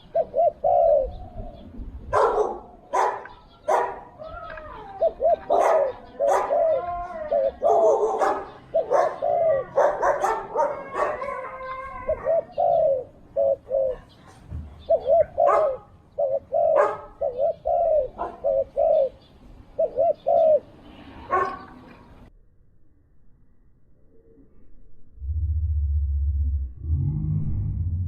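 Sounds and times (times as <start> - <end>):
doves cooing: 0.0 - 22.2.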